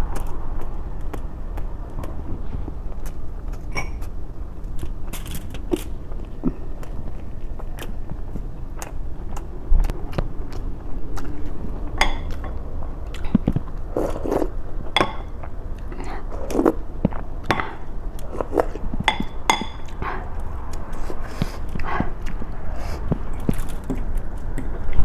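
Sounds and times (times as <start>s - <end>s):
chewing and mouth smacking: 0.1s - 25.0s.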